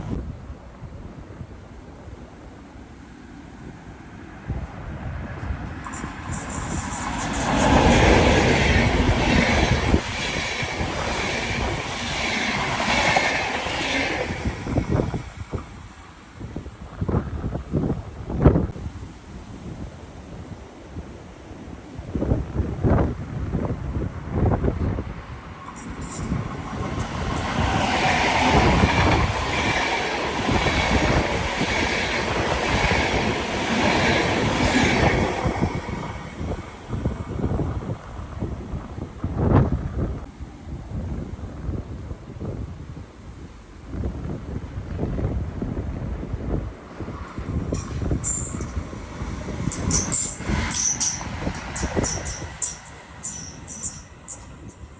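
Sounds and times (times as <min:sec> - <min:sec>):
train passing on rails: 0:00.0 - 0:42.1, 0:43.0 - 0:54.9
high ringing rail tone: 0:05.8 - 0:15.8, 0:25.6 - 0:33.0, 0:47.6 - 0:54.9
high whine from wheels: 0:47.4 - 0:54.9.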